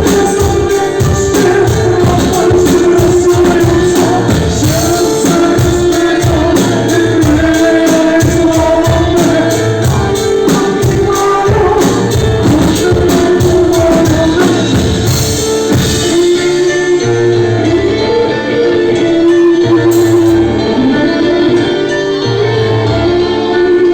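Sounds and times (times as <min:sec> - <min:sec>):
live band playing: 0:00.0 - 0:23.9
person singing: 0:00.0 - 0:23.9.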